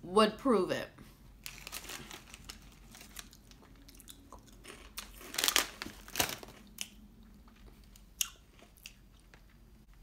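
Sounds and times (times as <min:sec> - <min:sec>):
crunching a chip: 0:01.5 - 0:07.0.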